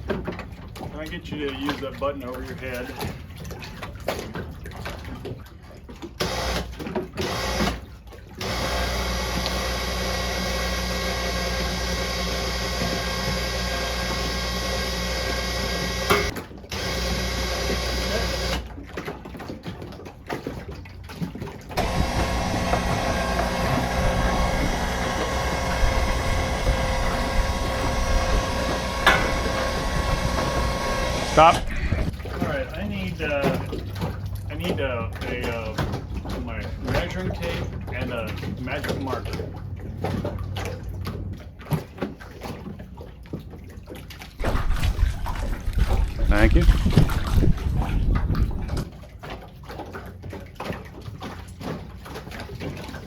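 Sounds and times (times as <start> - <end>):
electric winch running: 6.2 - 7.8, 8.4 - 18.7, 21.8 - 32.1.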